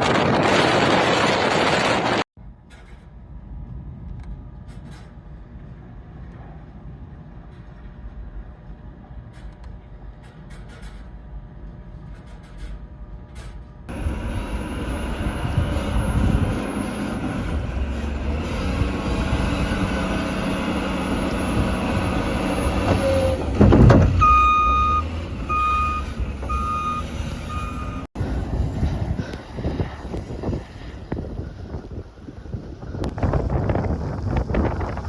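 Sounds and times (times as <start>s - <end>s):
truck engine running: 0.0s - 35.0s
reversing alarm beeping: 24.2s - 28.1s.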